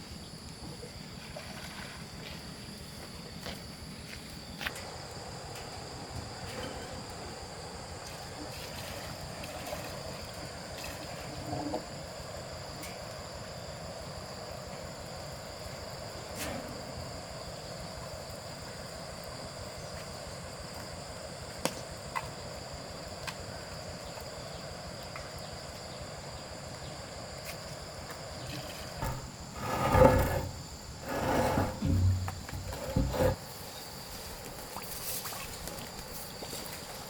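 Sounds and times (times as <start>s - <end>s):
loud rough sounds: 29.0s - 33.4s.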